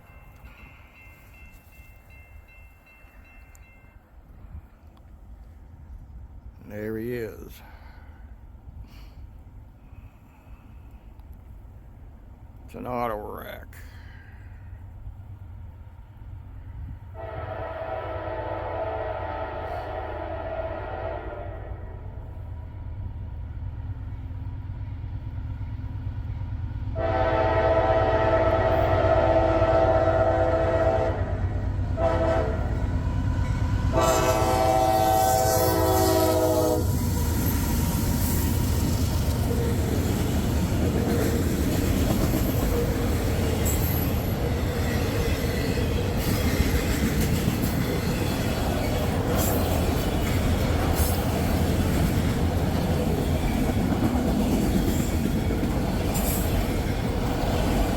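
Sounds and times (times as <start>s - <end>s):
train cars rumbling on rails: 14.8s - 57.9s
locomotive air horn: 17.2s - 22.1s, 27.0s - 32.8s, 33.9s - 37.0s.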